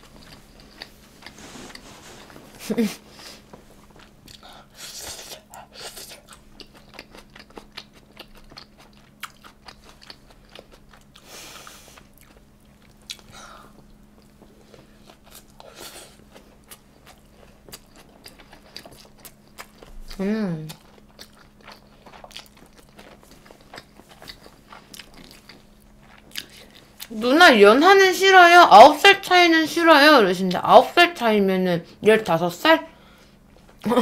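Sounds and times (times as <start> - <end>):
person chewing wetly: 0.0 - 2.4, 3.8 - 27.1
faint low hum: 0.0 - 34.0.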